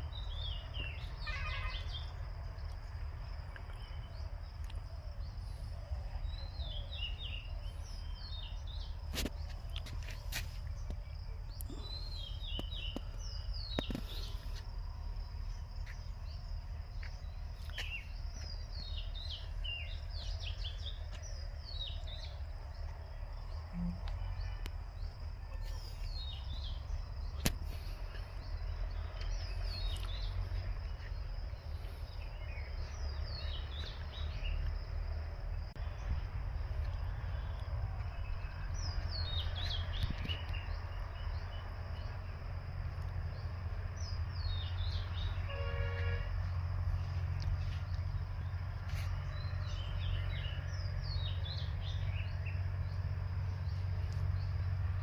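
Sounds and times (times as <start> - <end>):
bird chirping: 0.0 - 36.2, 47.0 - 54.7
constant low rumble: 0.0 - 55.0.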